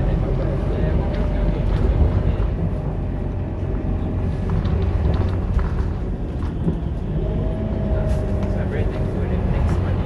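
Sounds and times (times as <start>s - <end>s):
diesel bus engine rumbling: 0.0s - 10.0s.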